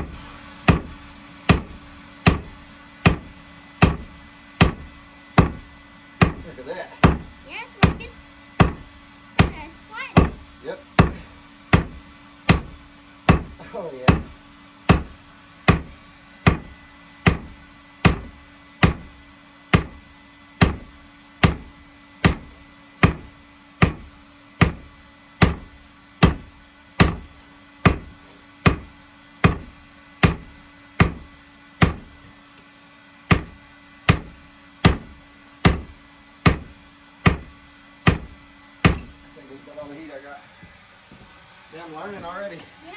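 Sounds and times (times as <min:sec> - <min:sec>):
hammer clanking on anvil: 0:38.1 - 0:39.2.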